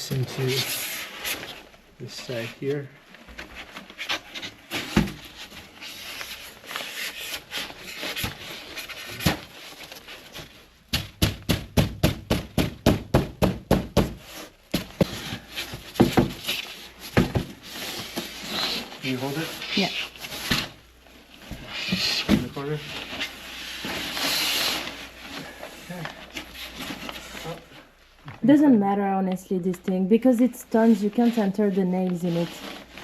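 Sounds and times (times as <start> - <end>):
knocking on insulation panels: 10.9 - 14.2.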